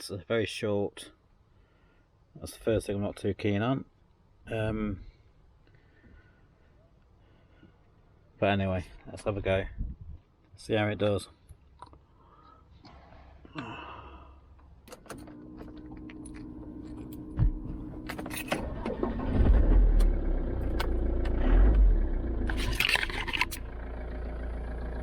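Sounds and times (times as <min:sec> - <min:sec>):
engine cranking: 0:15.0 - 0:24.0
engine running with low rumble: 0:15.1 - 0:25.0.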